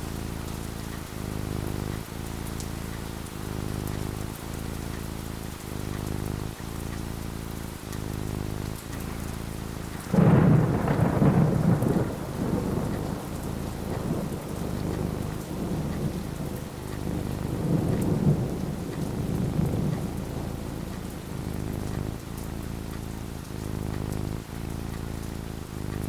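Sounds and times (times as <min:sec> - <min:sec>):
steady rain falling: 0:00.0 - 0:26.0
thunder rumbling: 0:09.8 - 0:22.9.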